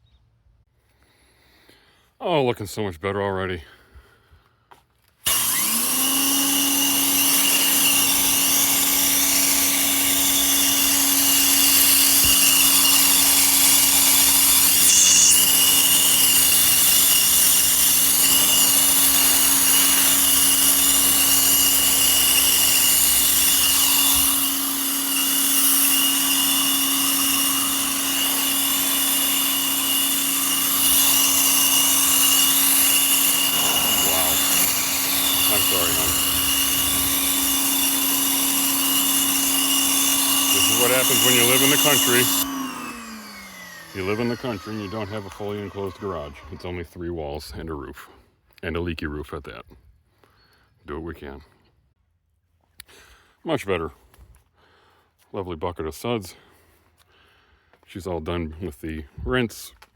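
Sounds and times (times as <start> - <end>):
pressure washer motor: 5.2 - 46.8.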